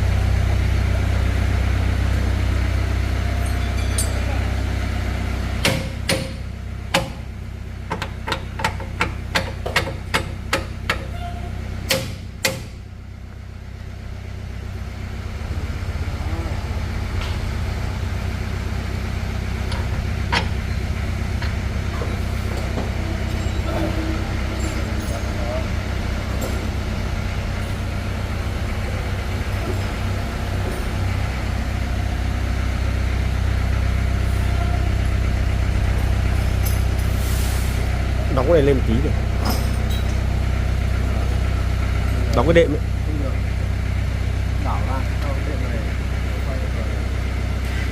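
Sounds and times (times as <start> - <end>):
steady low hum: 0.0 - 47.9
hammer striking metal: 5.6 - 7.2, 11.9 - 12.8.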